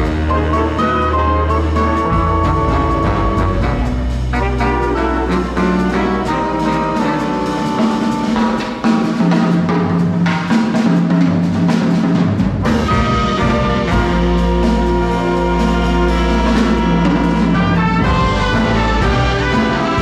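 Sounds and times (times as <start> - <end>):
brass section holding chords: 0.0 - 8.8, 12.8 - 20.0
drum kit keeping time: 0.0 - 20.0.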